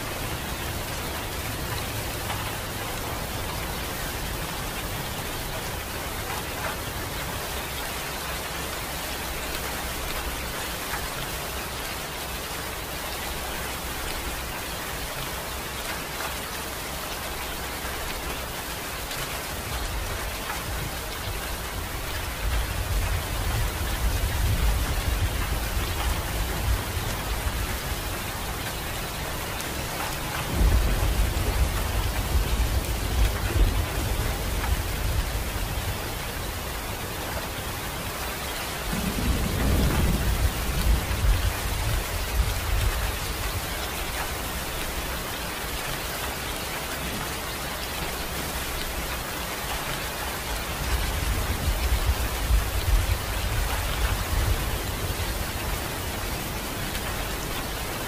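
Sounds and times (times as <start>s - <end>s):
steady rain falling: 0.0s - 58.0s
low rolling thunder: 19.6s - 36.7s, 38.8s - 44.3s.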